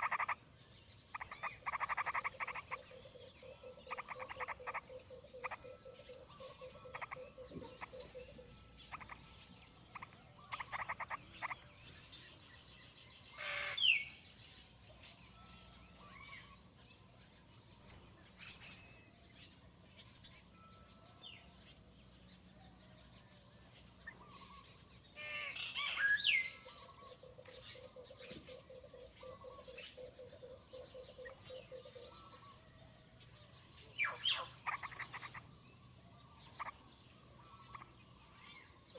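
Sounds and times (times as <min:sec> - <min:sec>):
rapid pulsed croaking calls: 0:00.0 - 0:00.4, 0:01.0 - 0:11.7, 0:13.3 - 0:14.2, 0:34.0 - 0:35.5, 0:36.4 - 0:38.0
birds chirping: 0:00.0 - 0:38.9.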